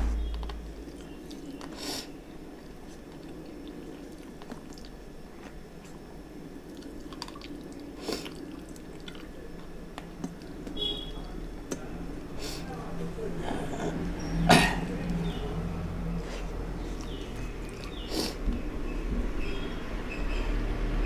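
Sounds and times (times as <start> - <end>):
man chewing: 0.3 - 11.8, 16.1 - 18.7.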